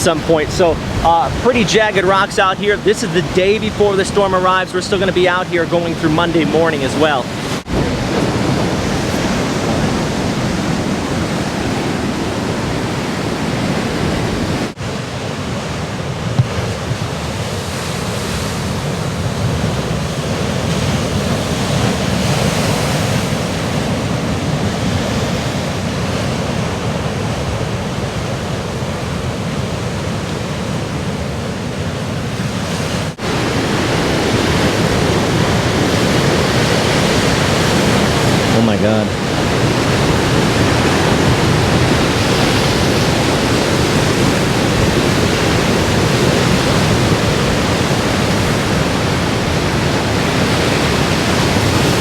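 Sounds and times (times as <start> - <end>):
surf breaking on rocks: 0.0 - 28.2, 32.4 - 52.0.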